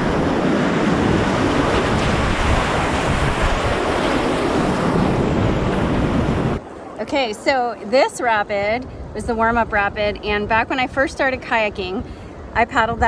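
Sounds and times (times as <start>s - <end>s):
whitewater rushing: 0.0s - 6.6s.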